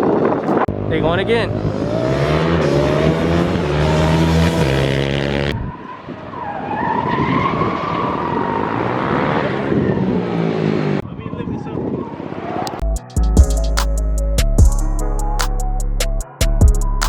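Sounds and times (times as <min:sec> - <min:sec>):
car tyres squealing: 0:01.7 - 0:10.8.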